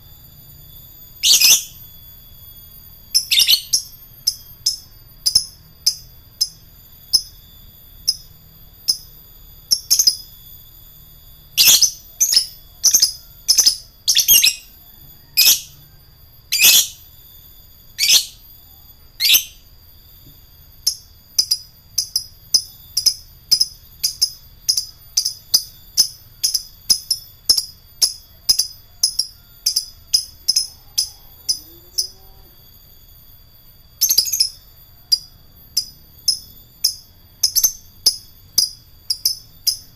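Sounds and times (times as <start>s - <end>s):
lovebird chirping: 1.1s - 1.8s, 3.1s - 10.4s, 11.6s - 15.9s, 16.5s - 17.1s, 17.9s - 19.6s, 34.0s - 39.9s.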